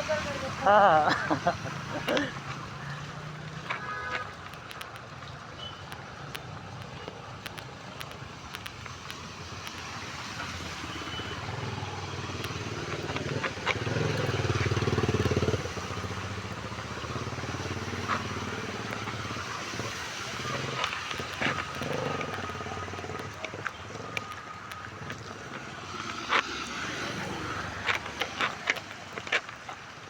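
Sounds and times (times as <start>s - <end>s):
rain falling: 0.0s - 30.0s
street traffic: 0.0s - 30.0s
vehicle engine passing by: 9.9s - 28.9s.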